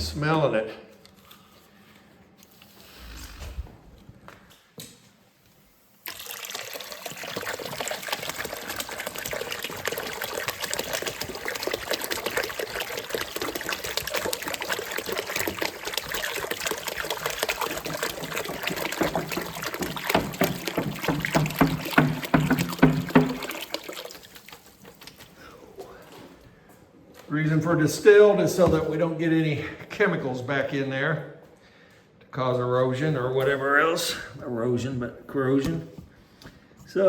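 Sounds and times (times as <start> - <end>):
jug gurgling: 6.0 - 25.4
water pouring into bucket: 6.0 - 25.5.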